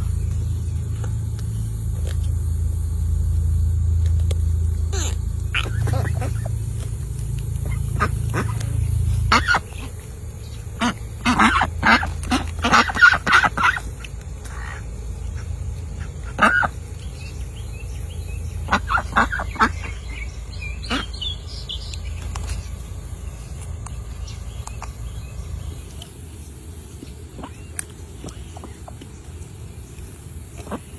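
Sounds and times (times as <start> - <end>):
low rumble: 0.0 - 30.9
ducks quacking: 4.7 - 26.2.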